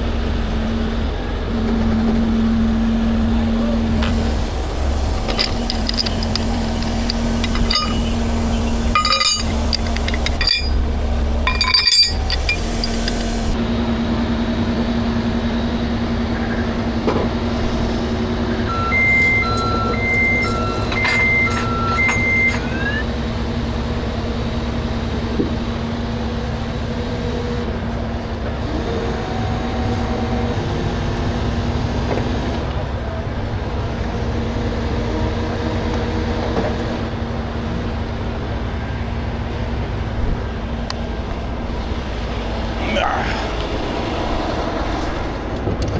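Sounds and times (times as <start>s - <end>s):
truck engine rumbling: 0.0s - 45.9s
alternating electronic beeps: 18.7s - 23.1s.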